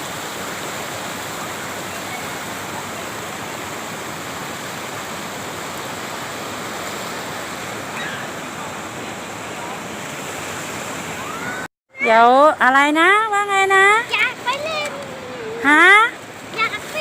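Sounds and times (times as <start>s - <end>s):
waterfall rushing: 0.0s - 11.7s, 13.3s - 17.0s.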